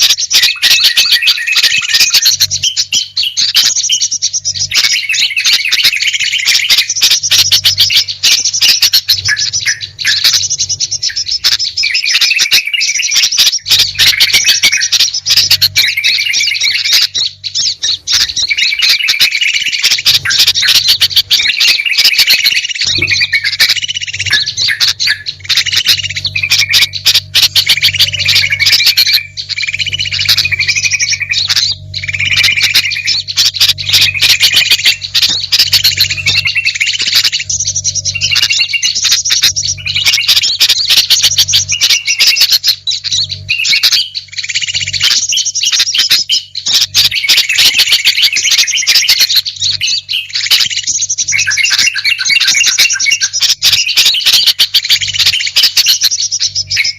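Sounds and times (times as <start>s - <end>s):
songbirds chirping: 0.0s - 56.9s
low hum: 13.5s - 45.3s.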